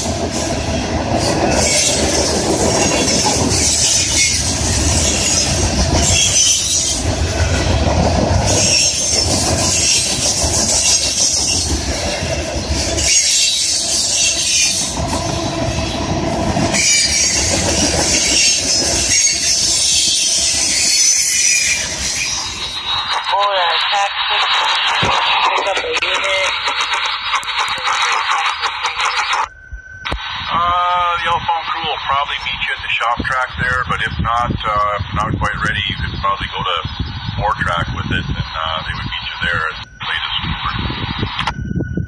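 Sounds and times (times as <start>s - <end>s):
train wheels clattering on rails: 0.0s - 21.9s
high wheel squeal: 0.3s - 7.2s, 8.4s - 23.2s.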